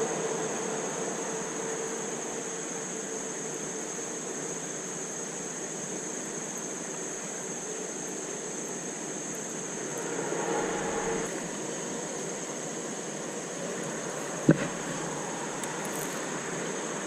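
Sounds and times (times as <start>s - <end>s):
high-pitched whine: 9.2s - 12.5s.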